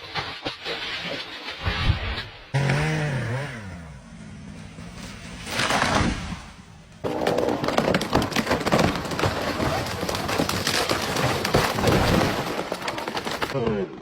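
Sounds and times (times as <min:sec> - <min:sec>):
chainsaw engine revving: 0:02.6 - 0:04.3
crackling of breaking wood: 0:05.4 - 0:14.0.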